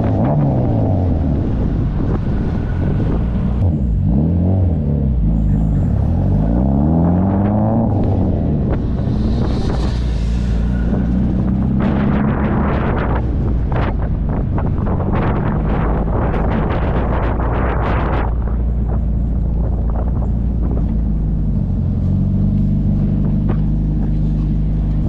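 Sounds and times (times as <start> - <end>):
car engine revving through gears: 0.0 - 17.0.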